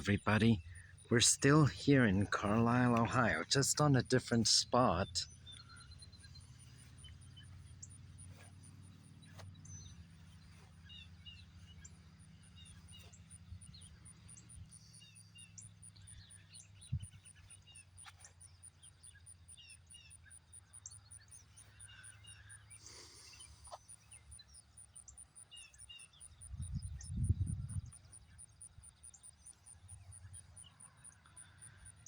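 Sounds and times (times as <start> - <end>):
steady low rumble: 0.0 - 14.8, 26.6 - 28.0
small birds chirping: 0.0 - 32.0.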